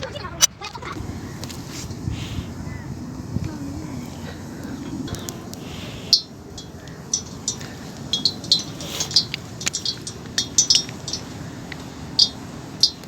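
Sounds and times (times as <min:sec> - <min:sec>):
metal utensils and dishes clinking: 0:06.1 - 0:11.5.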